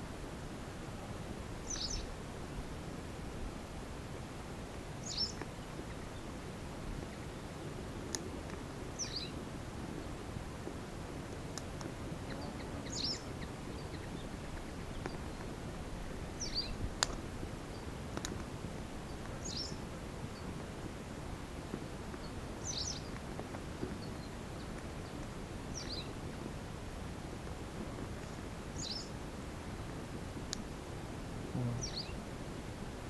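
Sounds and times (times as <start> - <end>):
bird chirping: 1.7 - 2.1, 5.0 - 5.4, 9.0 - 9.3, 12.2 - 15.4, 16.1 - 16.8, 19.4 - 19.8, 22.2 - 23.1, 28.8 - 29.1, 31.6 - 32.2.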